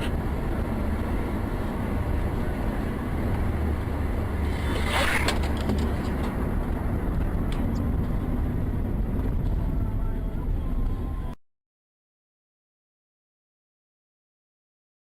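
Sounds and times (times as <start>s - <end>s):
road and engine rumble inside car: 0.0s - 11.4s.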